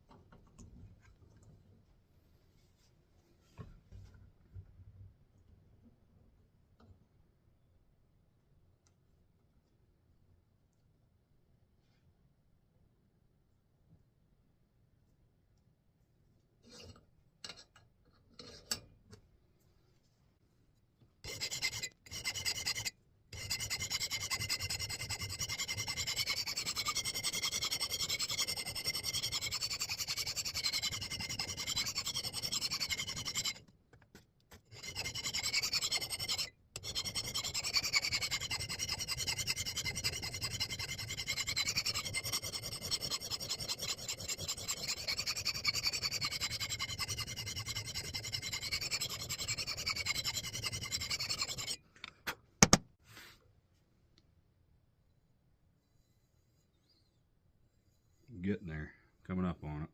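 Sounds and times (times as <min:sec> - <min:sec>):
metal file scraping steel: 0:16.6 - 0:17.7, 0:18.3 - 0:18.9, 0:21.2 - 0:33.7, 0:34.5 - 0:51.8.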